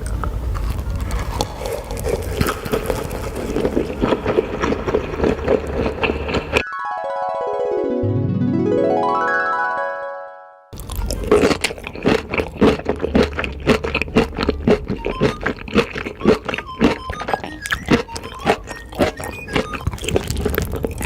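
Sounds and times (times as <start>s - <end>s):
close-up eating crunches and bites: 0.0s - 6.6s, 10.8s - 21.0s
keyboard jingle: 6.6s - 10.8s.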